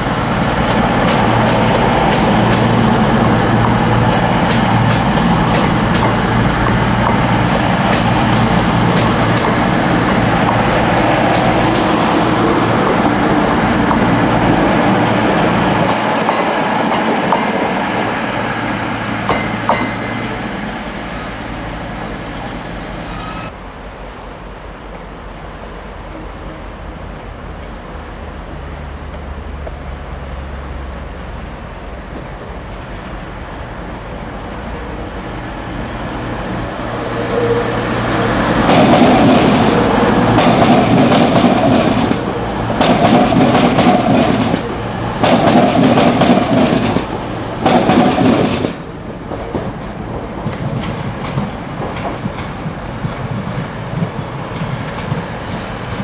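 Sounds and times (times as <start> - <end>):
diesel train engines humming: 0.0 - 56.0
distant train rumbling: 0.0 - 56.0
train wheels clicking over rail joints: 0.6 - 12.2, 38.6 - 56.0.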